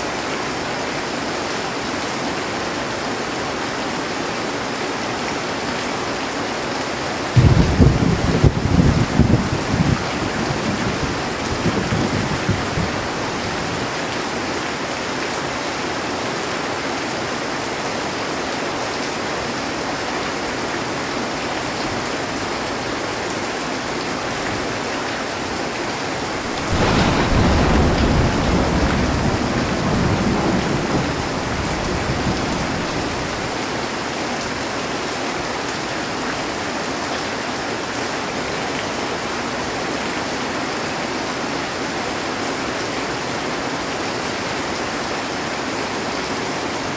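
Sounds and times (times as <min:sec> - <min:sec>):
heavy rain on a metal roof: 0:00.0 - 0:46.9
thunder clap rumbling: 0:07.4 - 0:14.0, 0:26.2 - 0:33.8.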